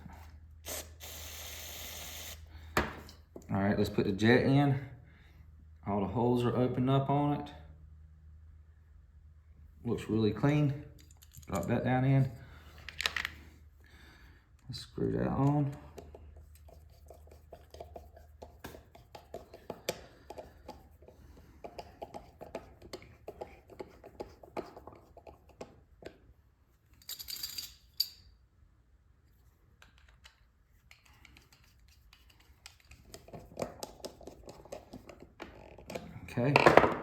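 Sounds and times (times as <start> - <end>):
metallic clicks and scrapes of parts: 10.9 - 11.9, 26.8 - 28.3, 29.3 - 36.2.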